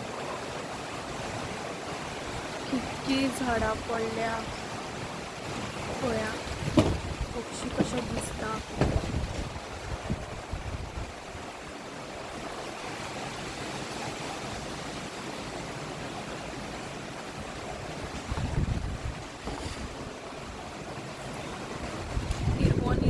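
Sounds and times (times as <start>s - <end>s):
wind buffeting microphone: 0.0s - 13.4s, 16.4s - 23.0s
storm wind rushing: 1.4s - 11.7s, 17.5s - 20.6s, 21.7s - 23.0s.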